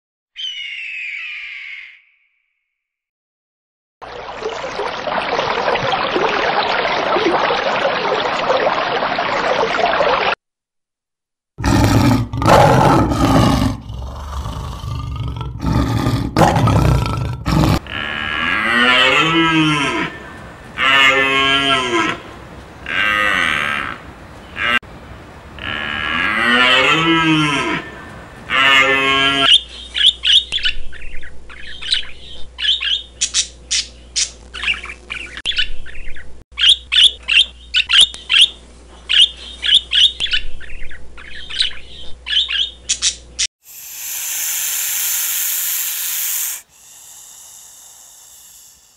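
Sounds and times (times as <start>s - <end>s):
rising and falling animal calls: 0.4s - 2.3s, 44.0s - 48.9s
long harsh animal call: 11.6s - 20.2s, 43.7s - 48.9s.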